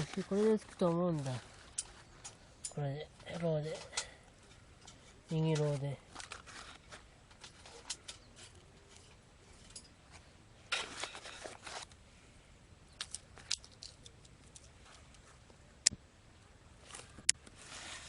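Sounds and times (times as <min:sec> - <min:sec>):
scratchy rustle: 0:06.1 - 0:09.7, 0:16.8 - 0:18.0.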